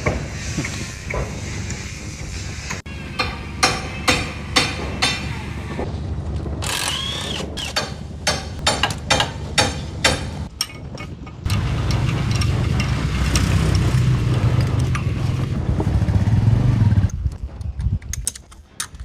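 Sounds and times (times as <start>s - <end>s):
sharp knocks: 3.2s - 5.4s, 7.6s - 11.6s.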